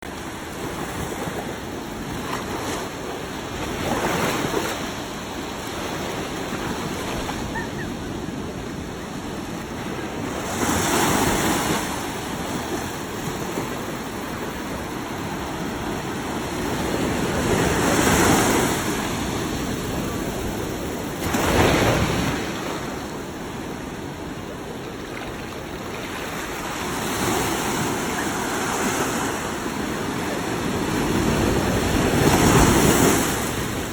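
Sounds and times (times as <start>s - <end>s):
wind blowing over microphone: 0.1s - 33.9s
waves breaking: 0.2s - 33.9s
roar of surf: 0.5s - 33.9s.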